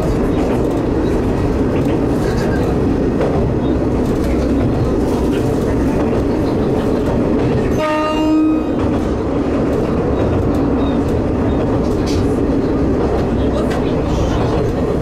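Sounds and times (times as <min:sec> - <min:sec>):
diesel railcar rumble and wheel noise: 0:00.0 - 0:15.0
train horn blast: 0:07.7 - 0:08.8.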